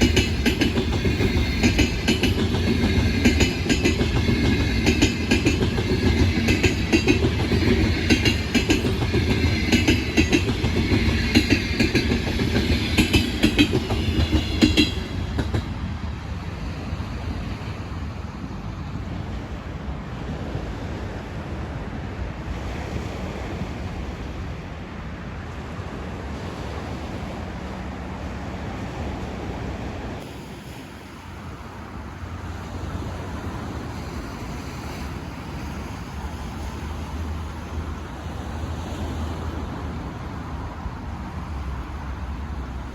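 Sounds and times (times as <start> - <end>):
train wheels clattering over rail joints: 0.0 - 16.0
train rumble: 0.0 - 42.9.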